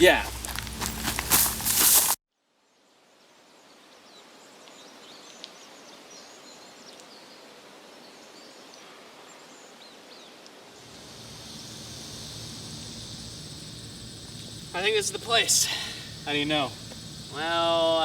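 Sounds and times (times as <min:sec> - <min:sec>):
high insect buzz: 0:00.0 - 0:02.2, 0:10.7 - 0:18.0
steady hiss: 0:04.3 - 0:18.0.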